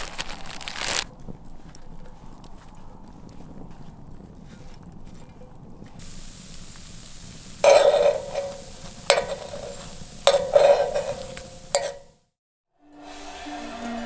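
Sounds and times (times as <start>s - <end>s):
food sizzling in pan: 6.0s - 12.2s
metal utensil knocking skillet: 6.0s - 12.2s.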